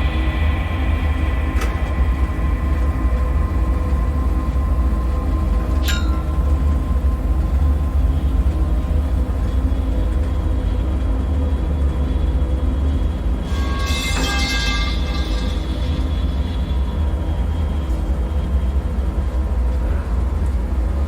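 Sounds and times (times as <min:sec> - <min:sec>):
deep rumble: 0:00.0 - 0:21.0
faint humming tones: 0:00.0 - 0:21.0
ringing metallic clatter: 0:05.7 - 0:07.6, 0:13.5 - 0:17.1
sharp falling squeak: 0:13.5 - 0:16.8.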